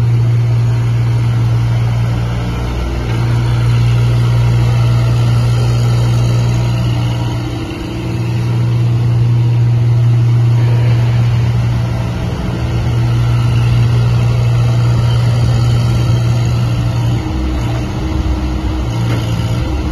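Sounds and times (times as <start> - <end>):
mini excavator engine running: 0.0 - 19.9.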